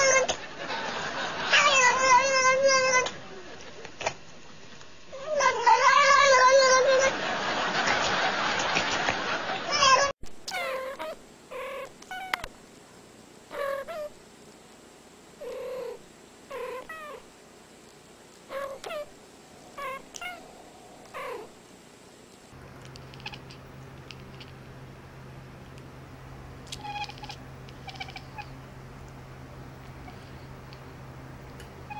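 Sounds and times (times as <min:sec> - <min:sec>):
cats meowing: 0:00.0 - 0:00.3, 0:01.5 - 0:03.1, 0:05.2 - 0:07.1, 0:09.7 - 0:12.5, 0:18.5 - 0:21.5, 0:22.9 - 0:24.5, 0:26.6 - 0:28.6, 0:29.8 - 0:30.8
steady low hum: 0:10.3 - 0:31.9.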